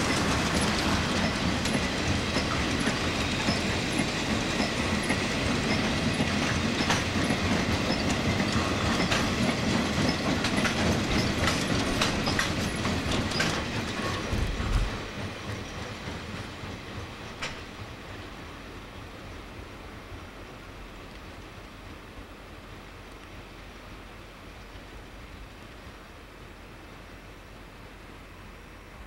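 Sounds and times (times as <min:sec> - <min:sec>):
wheels clacking over rail joints: 0:00.0 - 0:18.6
freight wagons rolling past: 0:00.0 - 0:19.4.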